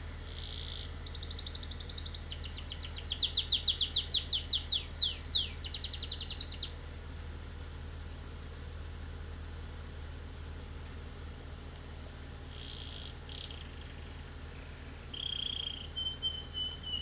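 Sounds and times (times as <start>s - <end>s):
songbird trilling: 0.0s - 6.8s, 12.4s - 17.0s
car engine idling: 0.0s - 17.0s.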